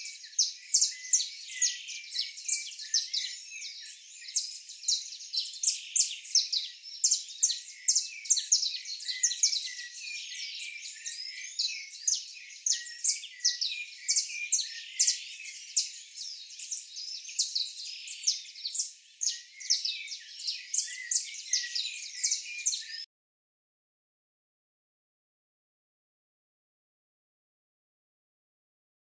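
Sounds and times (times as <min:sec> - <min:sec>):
birds chirping and twittering: 0:00.0 - 0:23.1.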